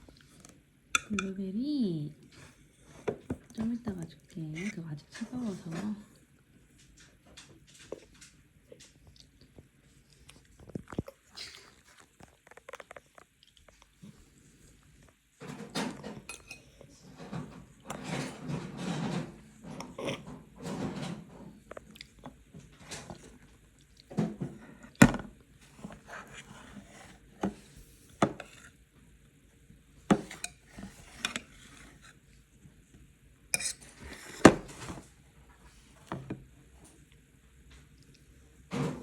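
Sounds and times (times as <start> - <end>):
cutlery clinking on a plate: 15.5 - 16.7.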